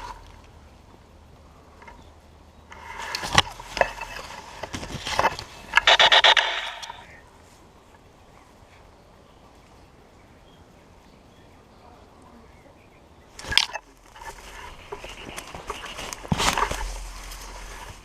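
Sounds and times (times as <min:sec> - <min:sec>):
scraping and clicking handling noise: 0:02.7 - 0:07.0, 0:13.4 - 0:18.0
laser tag gun electronic pulses: 0:05.8 - 0:07.0.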